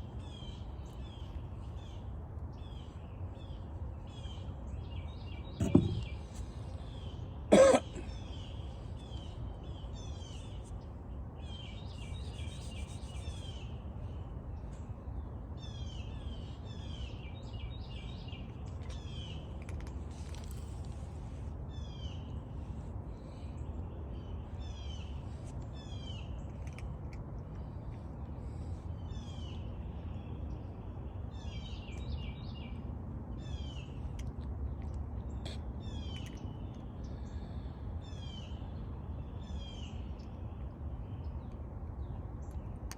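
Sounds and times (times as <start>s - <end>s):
steady low rumble: 0.0s - 31.4s
small birds chirping: 0.0s - 42.9s.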